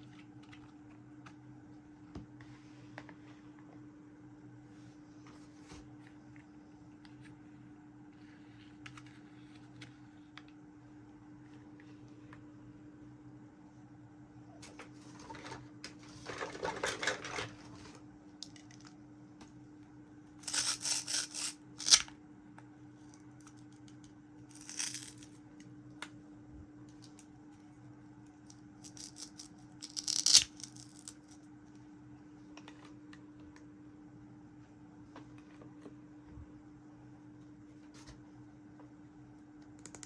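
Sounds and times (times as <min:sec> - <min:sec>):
steady low hum: 0:00.0 - 0:40.0
toy pieces clattering: 0:24.5 - 0:25.3, 0:28.8 - 0:31.4.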